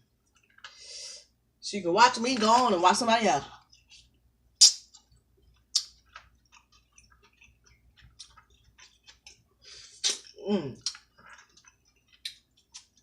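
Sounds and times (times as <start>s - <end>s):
wet mouth clicks and lip smacks: 4.6s - 9.4s, 10.0s - 13.0s.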